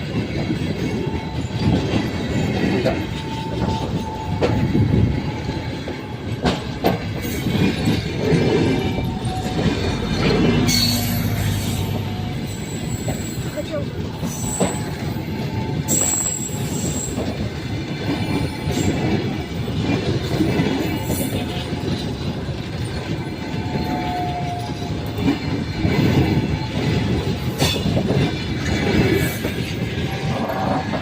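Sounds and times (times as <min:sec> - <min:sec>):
train rumbling over rails: 0:00.0 - 0:31.0
high wheel squeals: 0:07.2 - 0:13.6, 0:14.2 - 0:17.3, 0:22.8 - 0:28.4.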